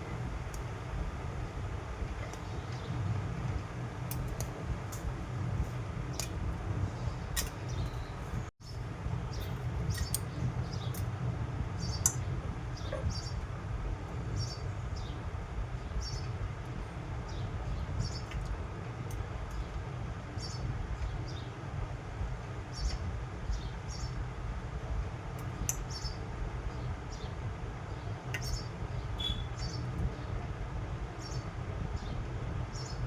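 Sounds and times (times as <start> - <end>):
steady low rumble: 0.0 - 33.0
small birds chirping: 4.0 - 11.2, 11.8 - 21.6, 22.6 - 24.2, 25.3 - 30.4, 31.1 - 33.0.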